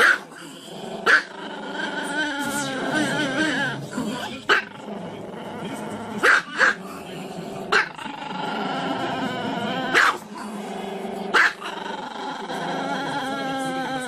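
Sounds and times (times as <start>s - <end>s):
small dog barking: 0.0s - 0.3s, 1.0s - 1.3s, 6.2s - 6.8s, 7.7s - 8.0s, 9.9s - 10.2s, 11.3s - 11.7s
dog growling: 0.0s - 14.0s.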